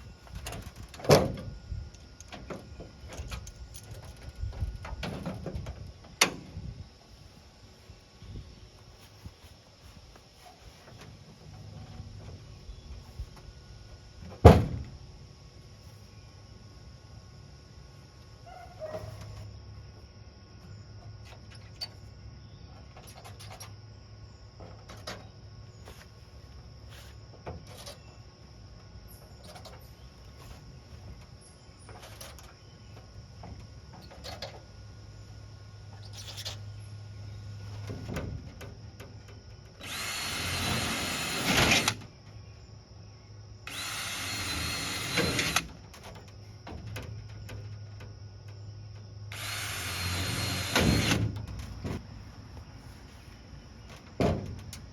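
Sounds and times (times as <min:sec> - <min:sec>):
power drill whining: 0:39.8 - 0:42.0, 0:43.7 - 0:45.7, 0:49.3 - 0:51.2.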